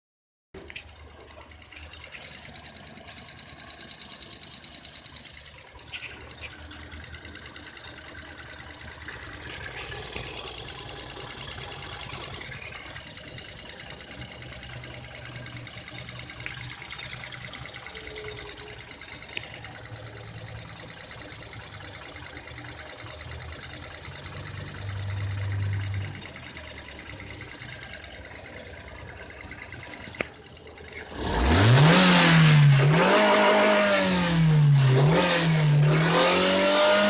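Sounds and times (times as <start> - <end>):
car engine running with ticking: 0.6 - 37.0.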